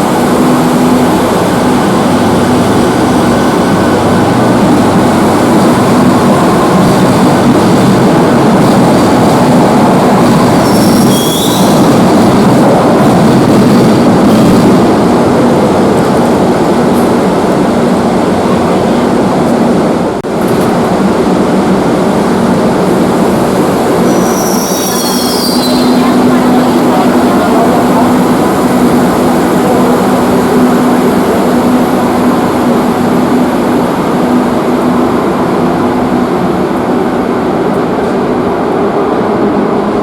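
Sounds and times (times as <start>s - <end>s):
metro train running on track: 0.0s - 40.0s
high-pitched wheel squeals: 10.6s - 11.9s, 24.0s - 26.2s.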